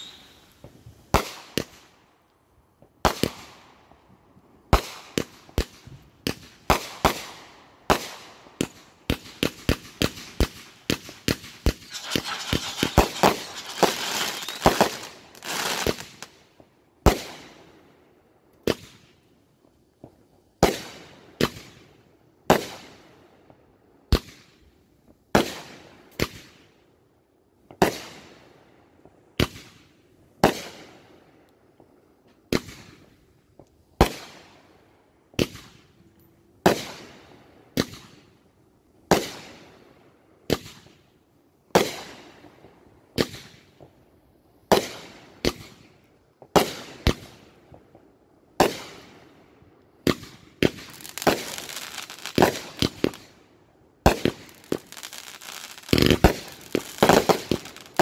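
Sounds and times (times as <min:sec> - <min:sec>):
fireworks bangs echoing: 0:00.0 - 0:01.9, 0:04.7 - 0:16.4, 0:36.6 - 0:38.2, 0:48.6 - 0:49.2, 0:50.0 - 0:53.4, 0:54.0 - 0:58.0.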